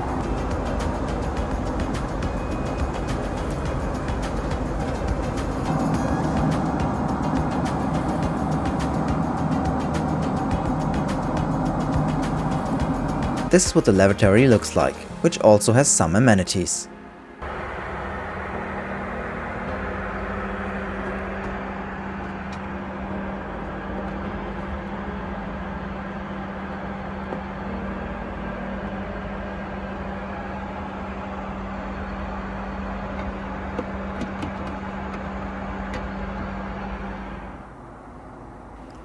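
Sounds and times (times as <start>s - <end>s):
airliner cabin noise: 0.0s - 39.0s.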